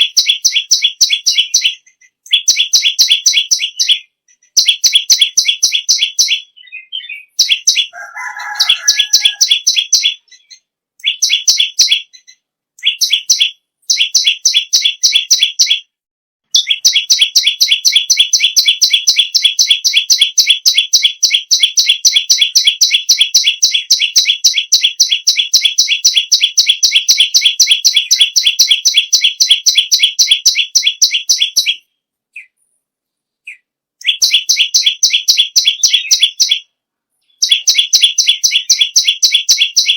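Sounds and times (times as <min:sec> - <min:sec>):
songbird singing high chips: 0:00.0 - 0:15.9, 0:16.5 - 0:31.8, 0:33.5 - 0:39.9
low bird call: 0:06.0 - 0:13.3.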